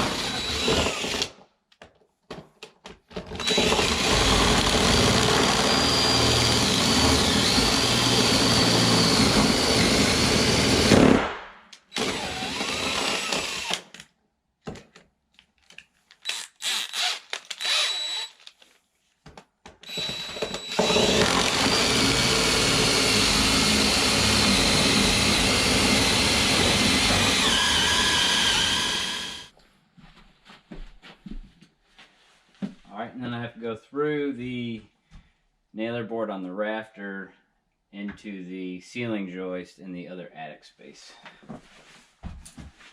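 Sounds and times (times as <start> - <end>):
power drill boring through wood: 0.0 - 1.3, 3.3 - 11.3, 11.9 - 14.0, 16.2 - 18.6, 19.8 - 29.5.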